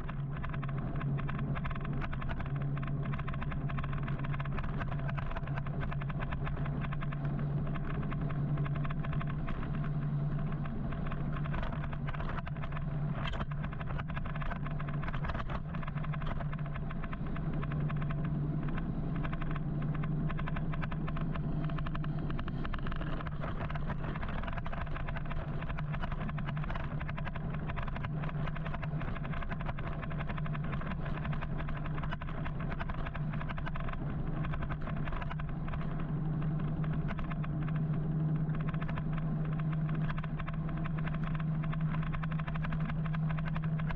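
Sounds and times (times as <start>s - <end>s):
low hum: 0.0s - 43.9s
road and traffic noise: 0.0s - 43.9s
wind crackling on microphone: 0.0s - 43.9s.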